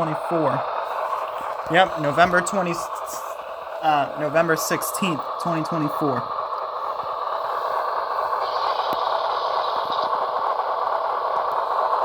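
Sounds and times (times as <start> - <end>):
model train diesel engine sound: 0.0 - 12.0
hiss: 6.5 - 12.0.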